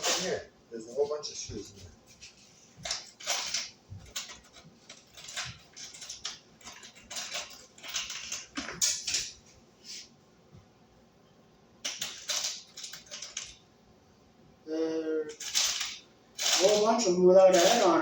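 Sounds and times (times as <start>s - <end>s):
hand rummaging through metal screws: 2.8s - 9.4s, 11.9s - 13.6s, 15.3s - 18.0s.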